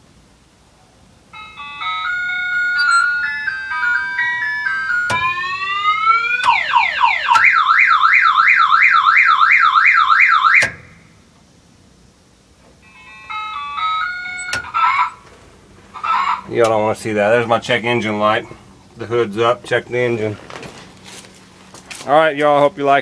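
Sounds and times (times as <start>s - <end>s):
novelty truck horn tune: 1.3s - 7.6s
rising siren-like tone: 1.4s - 10.8s.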